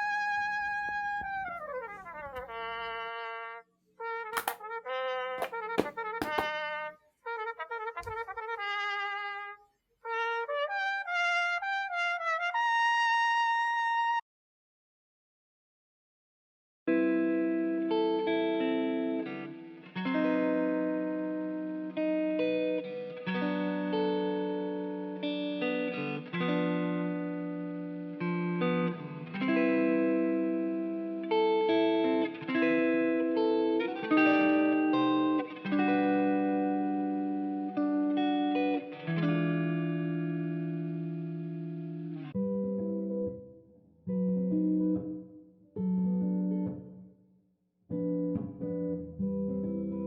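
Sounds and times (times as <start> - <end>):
guitar chords ringing: 16.9 - 46.9, 47.9 - 50.0.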